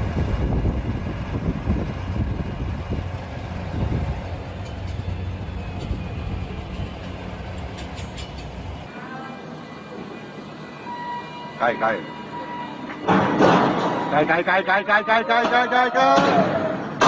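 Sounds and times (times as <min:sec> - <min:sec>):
tractor diesel engine running: 0:00.0 - 0:08.9.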